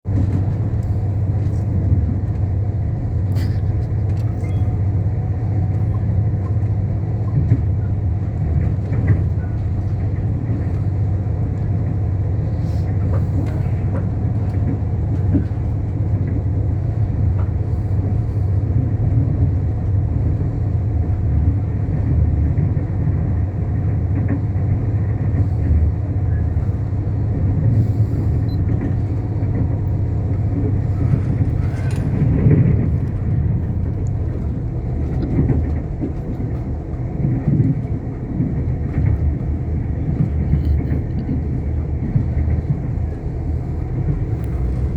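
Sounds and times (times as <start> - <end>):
train wheels rumbling on rail: 0.0 - 44.9
track clicks and squeals: 3.3 - 5.1, 27.7 - 44.9.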